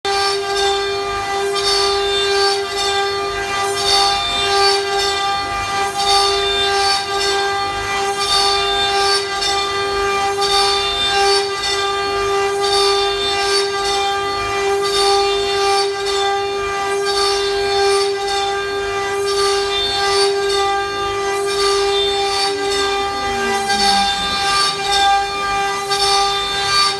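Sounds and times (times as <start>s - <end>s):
router spindle whine: 0.1s - 26.9s.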